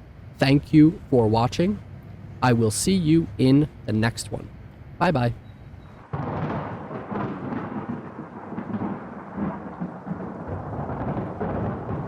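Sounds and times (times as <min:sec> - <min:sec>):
thunder rumbling: 0:06.0 - 0:12.0.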